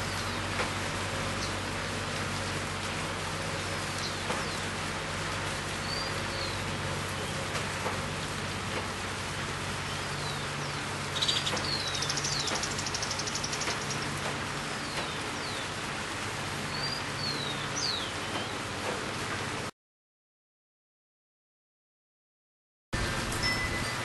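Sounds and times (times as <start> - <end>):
steady rain: 0.0 - 19.7, 23.0 - 24.0
bird call with rattling trill: 9.9 - 14.2, 23.4 - 24.0.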